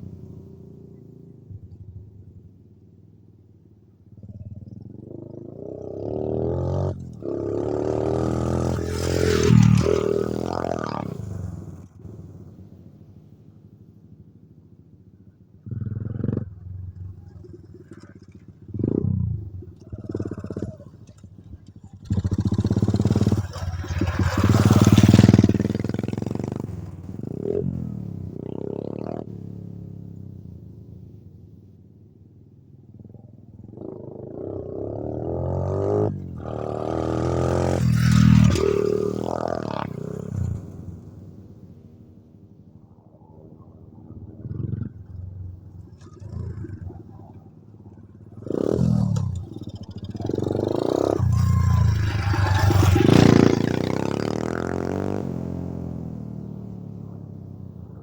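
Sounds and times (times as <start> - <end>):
pit bike engine revving: 4.8 - 11.7, 15.7 - 29.5, 33.7 - 41.1, 44.2 - 56.9.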